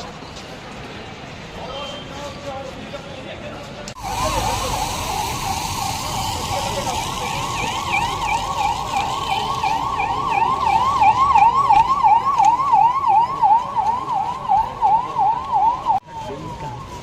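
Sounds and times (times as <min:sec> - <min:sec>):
siren yelping: 0:04.0 - 0:17.0.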